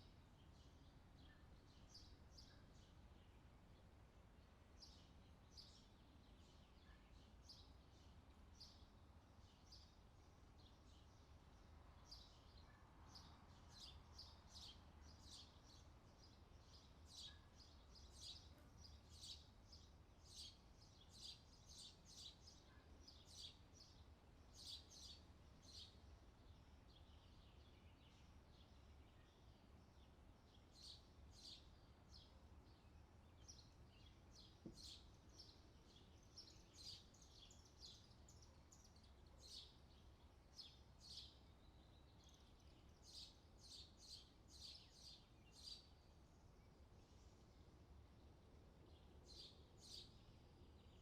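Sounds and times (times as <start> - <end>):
bird chirping: 24.6 - 47.4, 48.9 - 51.0.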